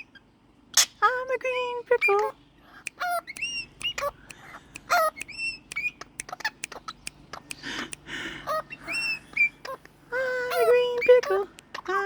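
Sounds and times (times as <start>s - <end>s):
parrot chirps and whistles: 2.0s - 7.6s, 8.6s - 9.8s.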